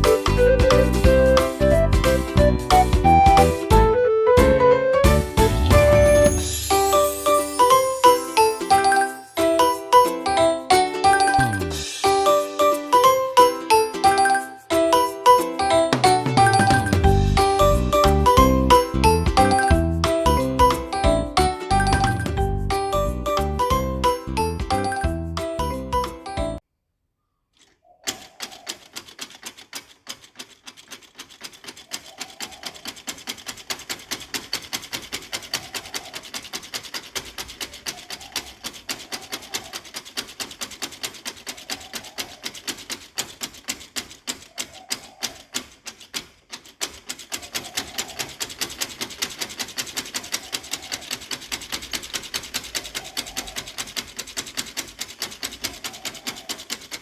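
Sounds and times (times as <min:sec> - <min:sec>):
hand tool scraping wood: 0:27.6 - 0:57.0.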